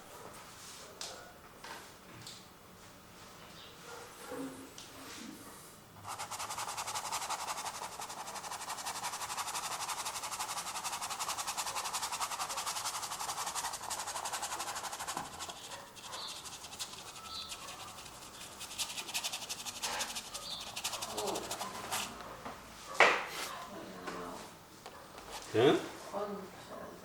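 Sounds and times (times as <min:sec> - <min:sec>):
paintbrush scrubbing on canvas: 0:06.0 - 0:22.2.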